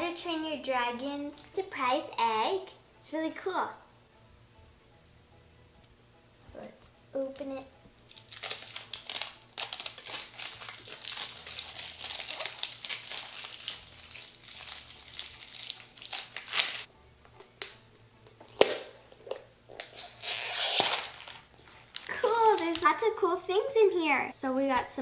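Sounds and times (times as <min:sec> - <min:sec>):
plastic packaging crinkling: 0:08.1 - 0:16.9, 0:18.5 - 0:23.0.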